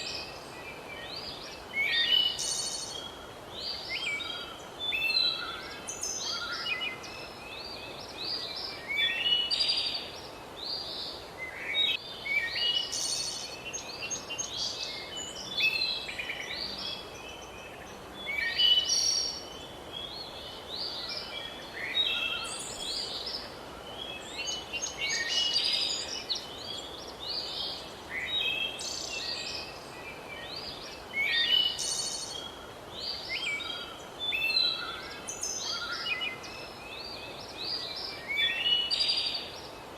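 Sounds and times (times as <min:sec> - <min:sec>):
outdoor ambience hiss: 0:00.0 - 0:39.9
songbirds chirping: 0:00.0 - 0:39.9.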